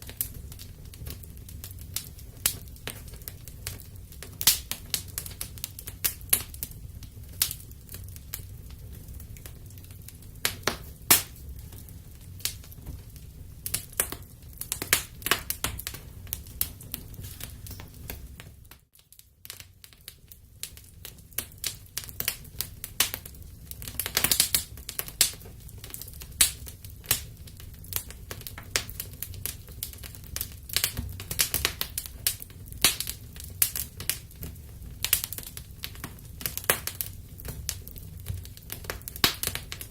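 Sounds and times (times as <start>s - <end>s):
burning wood popping and snapping: 0.0s - 39.9s
low rumble of flames: 0.0s - 39.9s.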